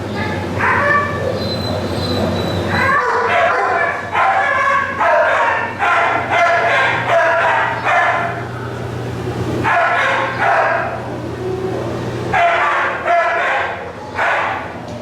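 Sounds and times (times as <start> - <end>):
steady low hum: 0.0 - 15.0
dog barking: 0.6 - 1.4, 2.8 - 8.4, 9.6 - 11.0, 12.3 - 14.7.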